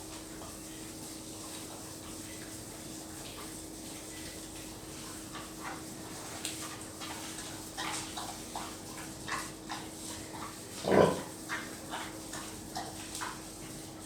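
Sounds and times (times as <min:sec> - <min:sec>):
pigs grunting and squealing: 0:10.8 - 0:11.4.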